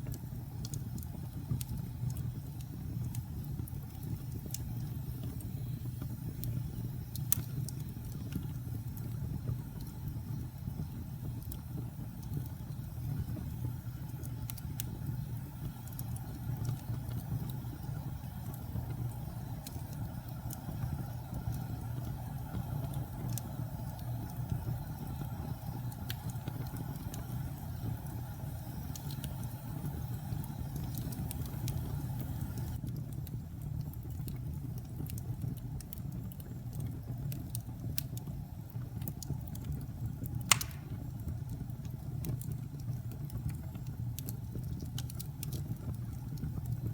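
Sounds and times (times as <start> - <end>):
fire crackling and popping: 0.0 - 46.9
fire flames rumbling: 0.0 - 46.9.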